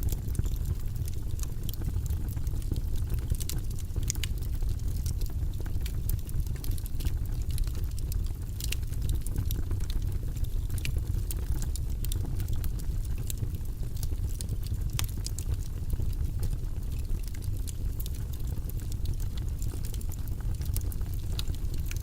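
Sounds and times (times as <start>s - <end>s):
fireplace fire crackling: 0.0s - 22.0s.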